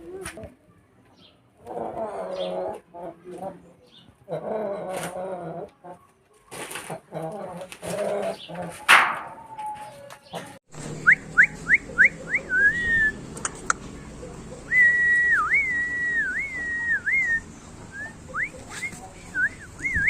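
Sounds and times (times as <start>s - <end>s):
person whistling a tune: 11.1s - 13.2s, 14.7s - 17.4s.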